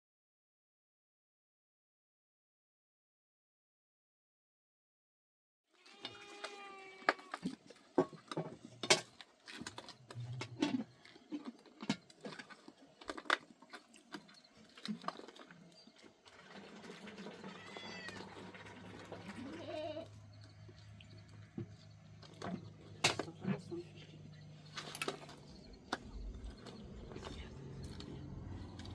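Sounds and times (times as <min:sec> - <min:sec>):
goats bleating: 0:05.8 - 0:07.5, 0:17.3 - 0:18.4, 0:19.2 - 0:20.2.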